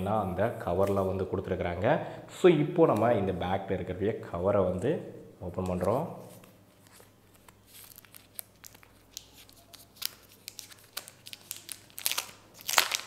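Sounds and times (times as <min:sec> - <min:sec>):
plastic wrap tearing and crinkling: 0:06.9 - 0:13.0.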